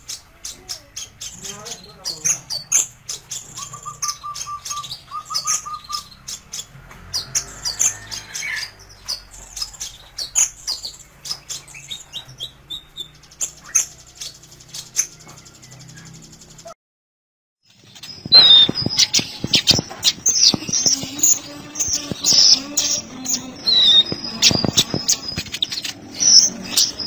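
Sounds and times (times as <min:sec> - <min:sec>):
sunbird singing: 0:00.0 - 0:16.7, 0:17.7 - 0:27.0.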